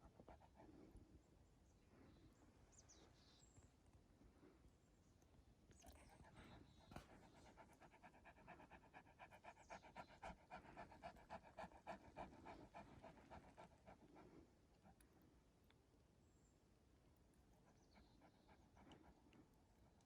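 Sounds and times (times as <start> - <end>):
dog panting: 0.0 - 1.0, 5.8 - 15.2, 17.5 - 20.0.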